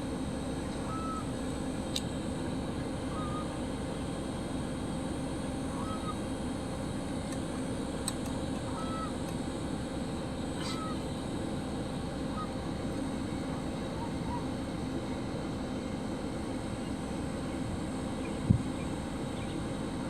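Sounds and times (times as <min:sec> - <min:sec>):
low outdoor rumble: 0:00.0 - 0:20.0
faint goose calls: 0:00.6 - 0:01.3, 0:03.1 - 0:03.5, 0:05.7 - 0:06.2, 0:08.6 - 0:09.2, 0:10.6 - 0:11.1, 0:12.2 - 0:12.7, 0:13.4 - 0:14.6.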